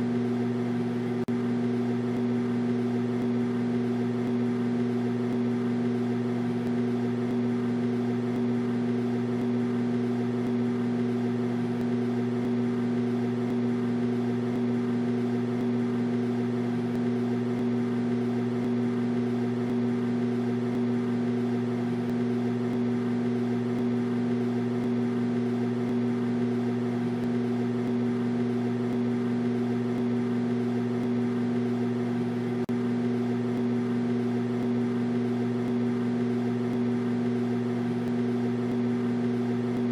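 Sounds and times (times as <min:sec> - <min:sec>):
microwave oven humming: 0:00.0 - 0:39.9.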